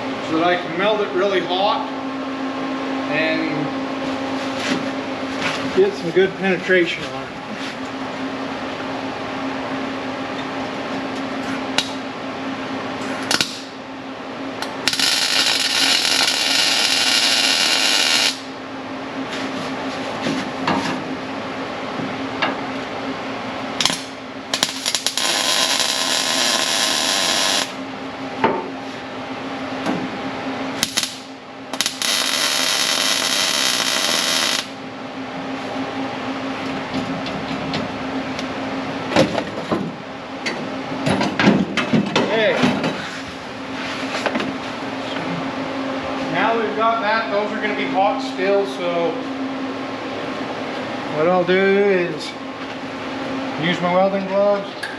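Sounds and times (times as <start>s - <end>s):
steady low hum: 0.0s - 54.9s
welder crackling hiss: 14.8s - 18.5s, 23.9s - 27.8s, 30.8s - 34.7s.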